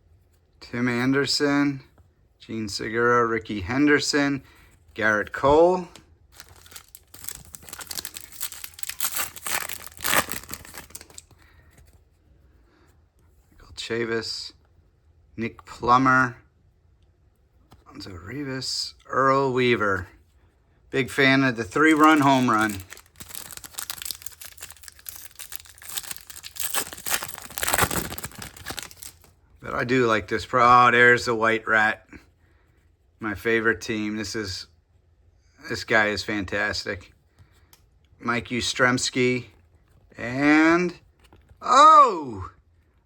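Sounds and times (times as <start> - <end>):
foil wrapper tearing and crinkling: 6.3 - 11.3, 21.7 - 29.3.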